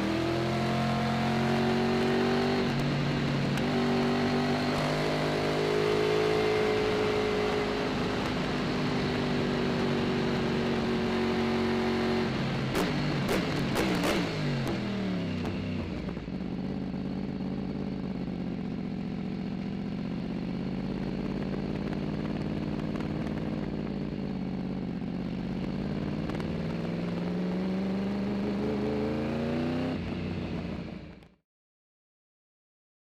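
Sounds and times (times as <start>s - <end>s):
racing motorcycle engine running: 0.0s - 31.4s.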